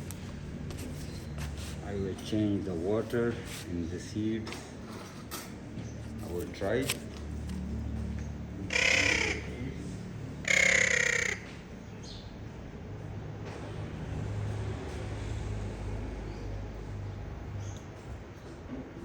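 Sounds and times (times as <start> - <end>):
parrot screeching: 8.7 - 9.6, 10.4 - 11.5.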